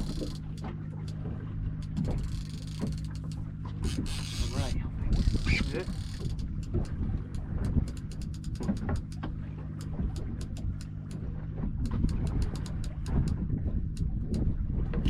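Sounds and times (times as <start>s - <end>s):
fishing reel ratchet ticking: 0.0s - 1.2s, 1.8s - 6.9s, 7.8s - 9.2s
boat engine idling: 0.0s - 15.0s.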